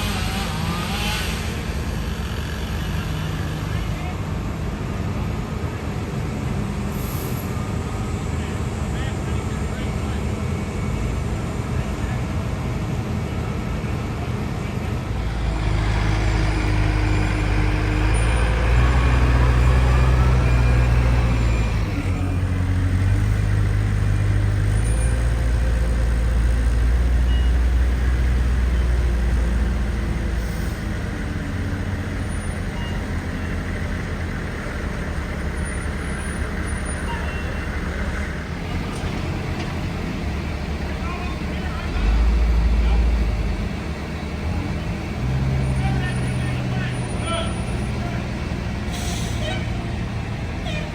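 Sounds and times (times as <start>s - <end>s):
heavy diesel engine revving: 0.0s - 4.3s, 15.0s - 50.9s.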